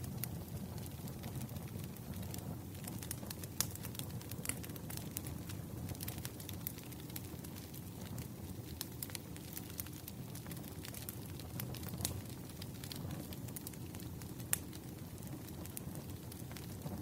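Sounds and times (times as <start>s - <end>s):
low rush of flames: 0.0s - 17.0s
wood fire crackling and popping: 0.0s - 17.0s.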